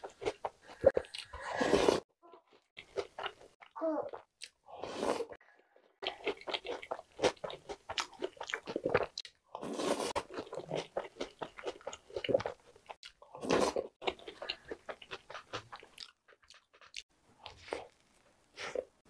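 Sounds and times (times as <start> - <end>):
chewing and crunching cereal: 0.0 - 19.0.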